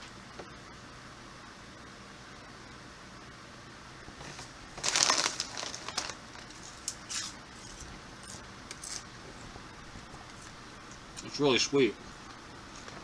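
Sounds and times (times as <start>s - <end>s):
popcorn rustling: 4.1s - 11.4s
popcorn crunching: 4.2s - 11.3s.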